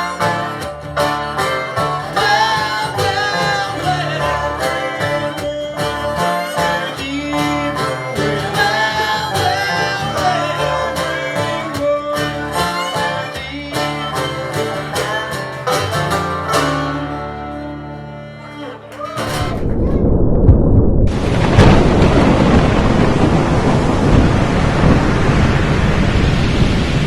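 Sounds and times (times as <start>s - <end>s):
bluegrass band playing plucked strings: 0.0s - 20.0s.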